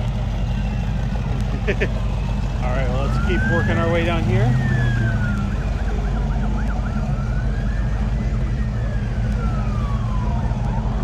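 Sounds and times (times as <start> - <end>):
emergency siren wailing: 2.0 - 11.0
siren yelping sweeps: 2.9 - 11.0.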